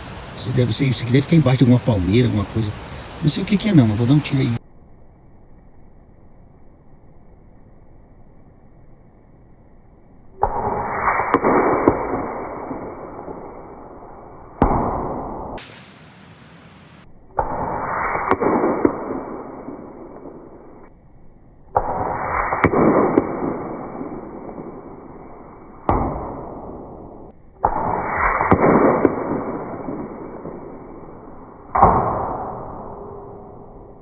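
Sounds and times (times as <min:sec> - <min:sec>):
rumbling echo of shots: 0:10.4 - 0:16.1, 0:17.3 - 0:20.8, 0:21.7 - 0:34.0
air rifle shots: 0:10.4 - 0:20.8, 0:21.7 - 0:33.1.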